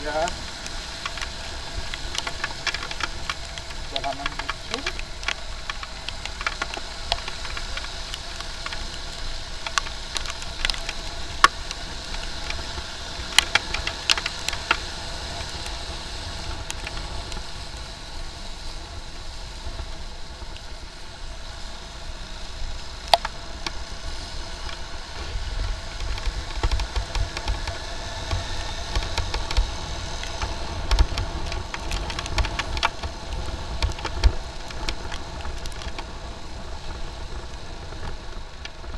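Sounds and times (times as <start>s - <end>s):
sharp ticks: 0.2s - 12.6s.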